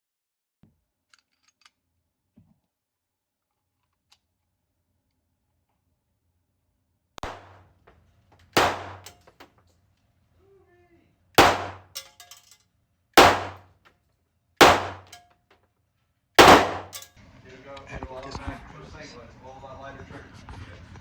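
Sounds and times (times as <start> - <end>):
pistol shots ringing indoors: 7.2 - 7.6, 8.6 - 9.2, 11.4 - 12.4, 13.2 - 13.6, 14.6 - 15.2, 16.4 - 17.1
faint gunshot report: 8.6 - 9.1, 11.4 - 11.9, 13.2 - 13.6, 14.6 - 15.1, 16.4 - 17.0.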